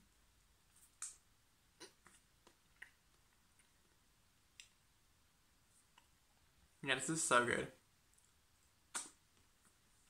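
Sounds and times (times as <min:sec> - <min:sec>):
wet mouth clicks of chewing: 0:01.8 - 0:04.0.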